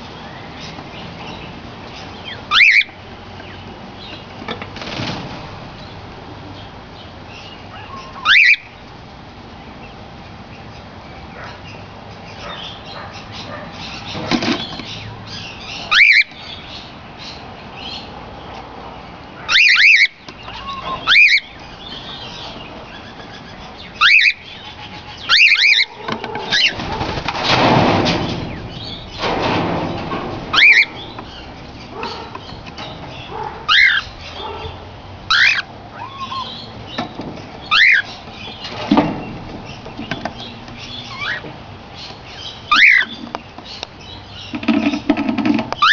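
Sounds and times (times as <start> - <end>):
cockatiels whistling calls: 2.2 - 3.0, 7.8 - 8.7, 15.9 - 16.4, 19.5 - 21.6, 24.0 - 24.5, 25.2 - 25.9, 30.5 - 31.0, 33.7 - 34.1, 35.3 - 36.7, 37.7 - 38.2, 41.1 - 41.4, 42.7 - 43.2
wings flapping: 4.6 - 5.8, 26.2 - 31.0.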